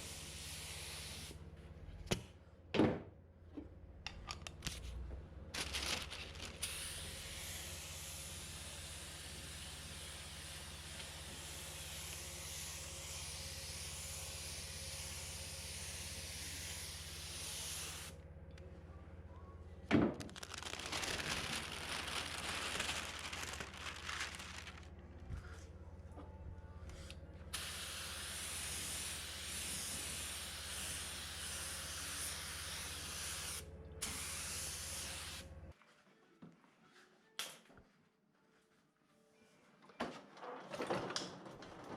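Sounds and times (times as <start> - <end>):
air gun hissing: 0.0 - 1.3, 6.6 - 18.2, 27.5 - 35.5
steady low hum: 1.3 - 35.8.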